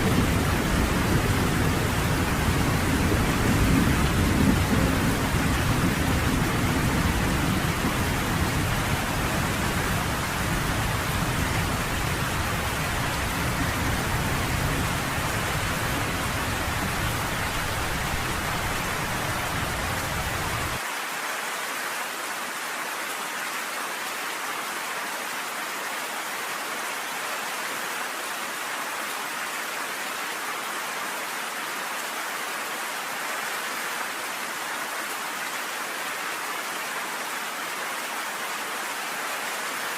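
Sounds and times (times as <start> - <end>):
low rolling thunder: 0.0 - 20.8
heavy rain pelting down: 0.0 - 39.9.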